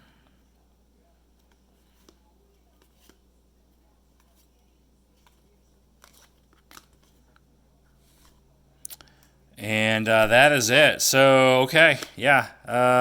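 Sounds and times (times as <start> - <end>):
trading cards shuffled: 1.4 - 3.3, 4.1 - 7.4, 8.0 - 8.4.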